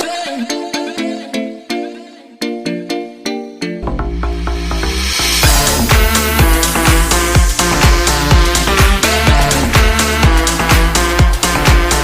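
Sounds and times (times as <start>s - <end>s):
kick drum: 3.8s - 12.0s
sustained synthesizer chords: 3.8s - 12.0s.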